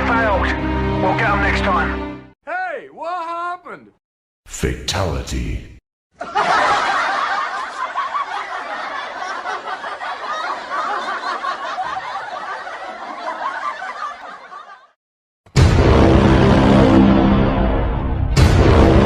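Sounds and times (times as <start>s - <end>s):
laughter: 6.2s - 15.0s
loud music: 15.6s - 19.0s.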